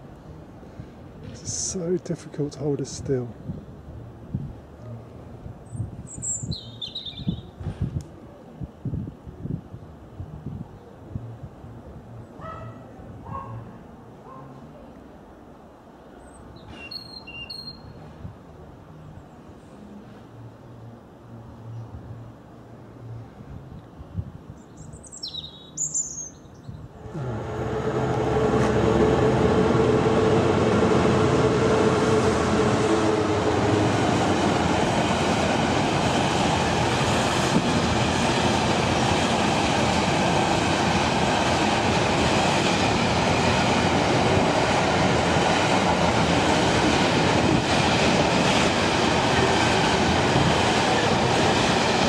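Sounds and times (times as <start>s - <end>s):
diesel freight train passing: 0.0s - 7.8s, 26.9s - 52.0s
bird chirping: 6.1s - 7.5s, 16.3s - 18.0s, 24.6s - 26.8s.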